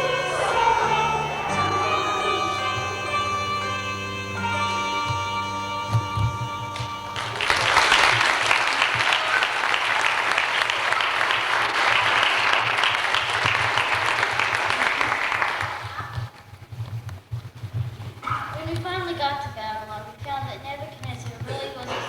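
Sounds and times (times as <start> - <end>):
audience applauding: 0.0 - 5.2, 5.9 - 16.8
held music notes: 0.0 - 15.8.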